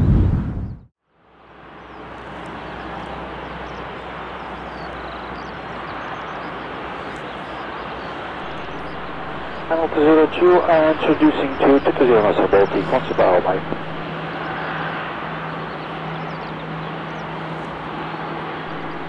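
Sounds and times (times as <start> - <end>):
jet engine rushing: 8.0 - 19.0.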